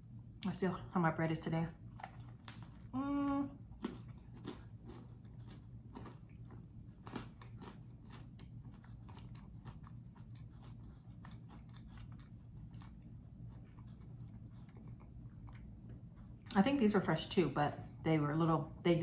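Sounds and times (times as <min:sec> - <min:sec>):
chewing crunchy bread: 0:01.8 - 0:16.8.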